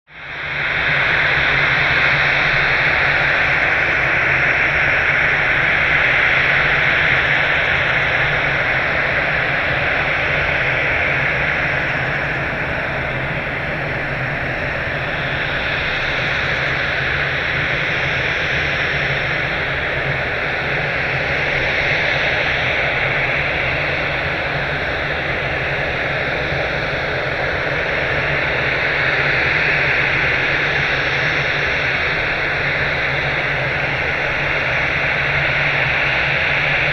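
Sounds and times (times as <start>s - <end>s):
jet engines running: 0.2s - 36.9s.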